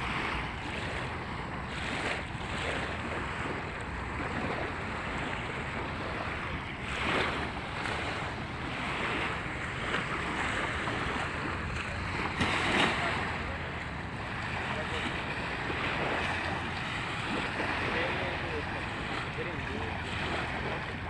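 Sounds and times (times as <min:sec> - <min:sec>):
small waves washing onto sand: 0:00.0 - 0:21.0
wind buffeting microphone: 0:00.0 - 0:21.0.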